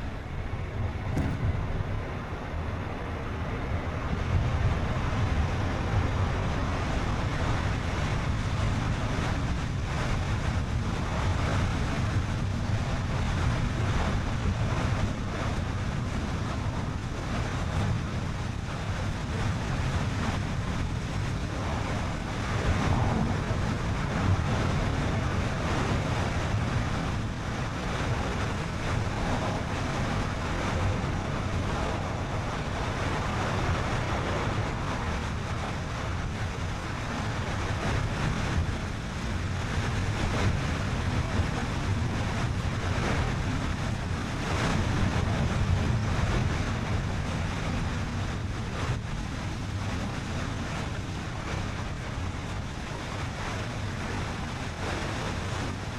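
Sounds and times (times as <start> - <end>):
car tyre rumble: 0.0 - 55.9
wind rushing over microphone: 0.0 - 55.9.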